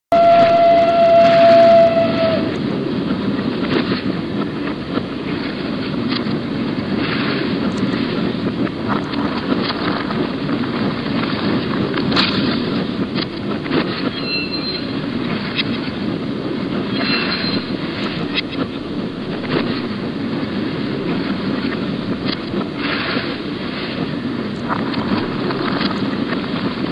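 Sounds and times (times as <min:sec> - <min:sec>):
train whistle: 0:00.1 - 0:02.6
train rumbling: 0:00.1 - 0:26.9
high wheel squeals: 0:14.1 - 0:15.0, 0:16.9 - 0:17.8.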